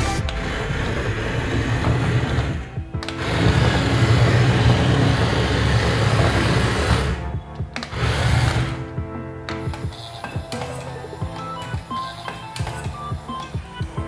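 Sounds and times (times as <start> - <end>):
background music: 0.0 - 14.0
toy excavator motor whirring: 1.8 - 7.2, 7.8 - 8.8.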